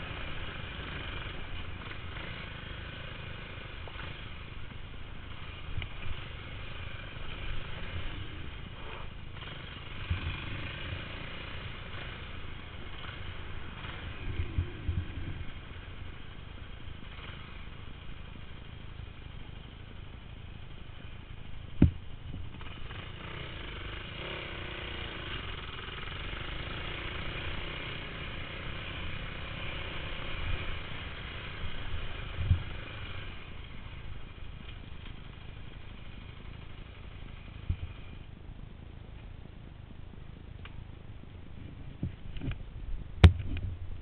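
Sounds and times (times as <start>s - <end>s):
motocross bike engines running: 0.0s - 44.0s
dull thumps: 21.8s - 22.0s, 43.2s - 43.8s.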